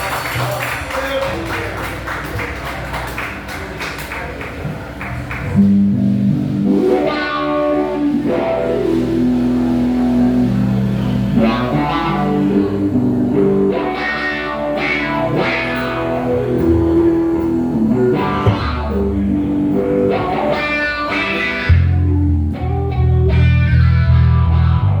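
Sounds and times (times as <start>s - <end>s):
bass guitar: 4.6s - 25.0s
melodic guitar lines: 5.4s - 25.0s.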